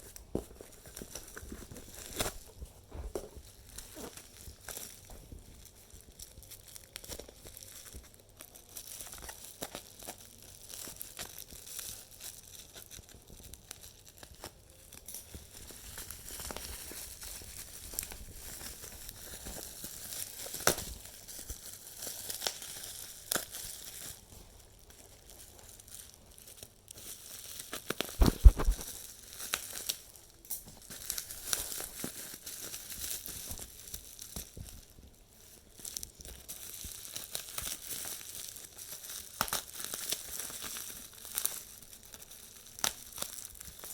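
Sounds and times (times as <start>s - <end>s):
packaging crinkling and tearing: 0.0s - 43.9s.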